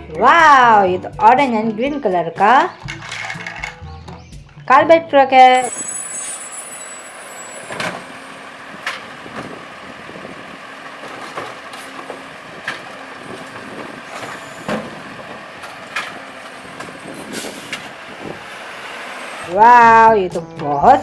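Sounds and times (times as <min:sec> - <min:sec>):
plastic toy clicks and knocks: 0:02.7 - 0:03.8.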